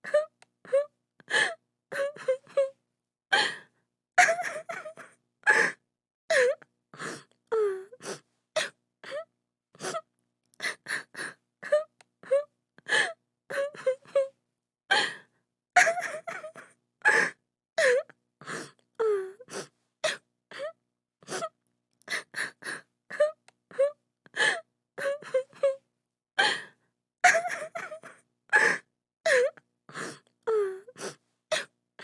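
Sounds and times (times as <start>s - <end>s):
woman sobbing: 0.0s - 2.7s, 4.2s - 5.7s, 15.8s - 18.0s, 23.1s - 25.8s, 27.2s - 29.6s.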